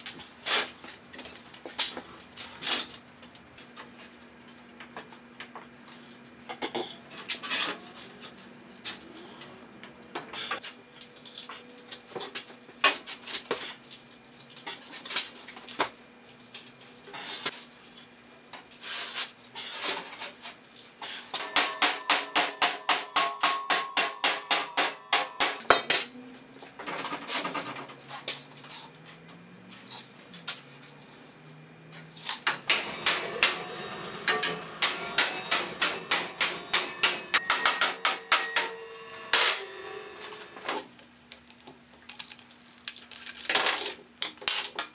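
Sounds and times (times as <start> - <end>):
hammer blows on ringing sheet steel: 21.4 - 25.9, 32.5 - 40.7.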